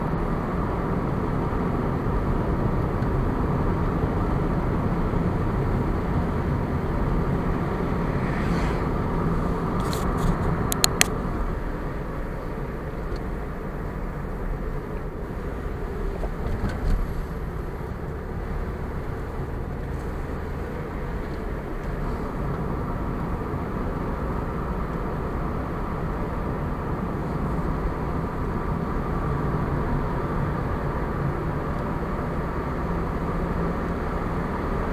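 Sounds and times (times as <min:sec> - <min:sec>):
car engine and tyre noise: 0:00.0 - 0:34.9
sharp clicks: 0:09.8 - 0:11.2.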